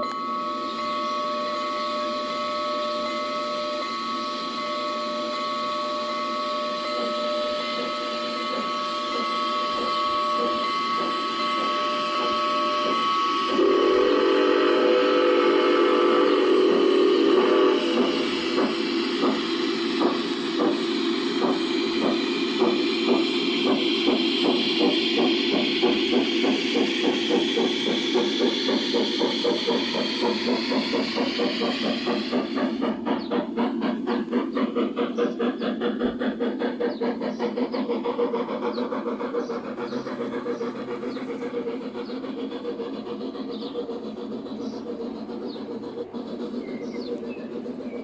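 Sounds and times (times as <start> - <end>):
model train locomotive drone: 0.0 - 48.0.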